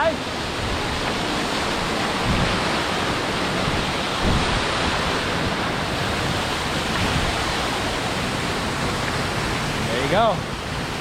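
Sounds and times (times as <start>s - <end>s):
waterfall and creek rushing: 0.0s - 11.0s
wind buffeting microphone: 0.2s - 11.0s.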